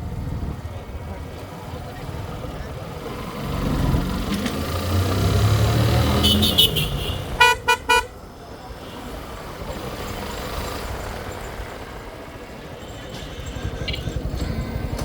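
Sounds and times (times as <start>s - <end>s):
road traffic noise: 0.0s - 15.0s
vehicle horn beep: 6.1s - 8.2s.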